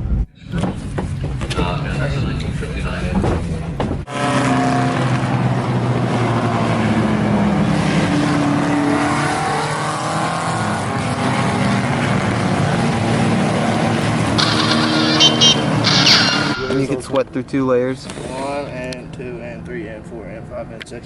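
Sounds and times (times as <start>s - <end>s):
car engine revving: 4.1s - 17.0s.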